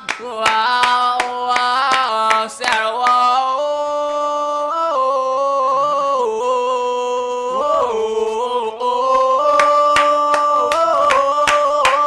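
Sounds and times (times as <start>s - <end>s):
hand claps in a beat: 0.0s - 3.5s, 9.1s - 12.0s
voices singing long notes: 0.0s - 12.0s.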